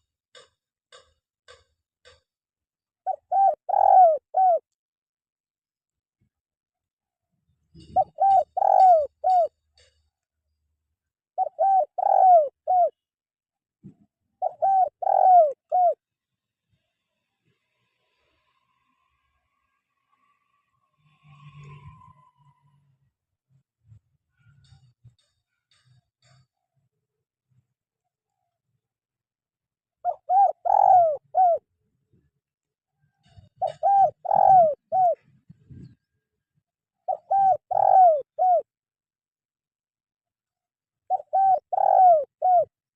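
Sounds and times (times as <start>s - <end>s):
dove cooing: 3.0s - 4.7s, 7.8s - 9.9s, 11.4s - 13.0s, 14.4s - 16.0s, 30.0s - 31.7s, 33.2s - 36.0s, 37.0s - 38.7s, 41.1s - 42.8s.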